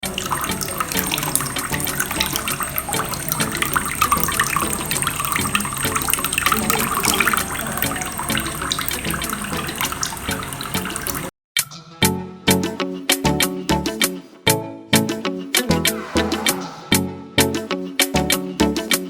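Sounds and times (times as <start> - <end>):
water splashing into a basin: 0.0 - 11.3.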